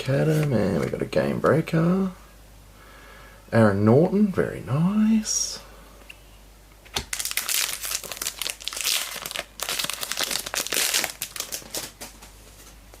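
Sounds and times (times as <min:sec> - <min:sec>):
foil wrapper tearing and crinkling: 0:07.0 - 0:12.0.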